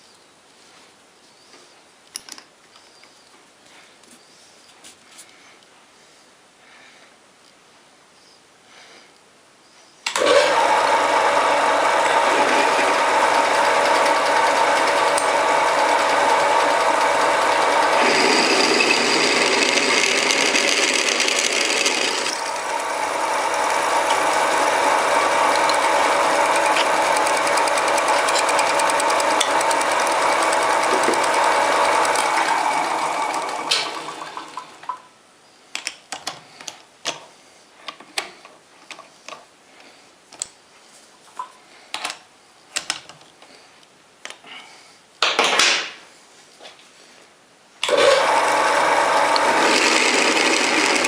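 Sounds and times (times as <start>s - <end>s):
lathe motor humming and whining: 10.1s - 34.8s, 47.9s - 51.0s.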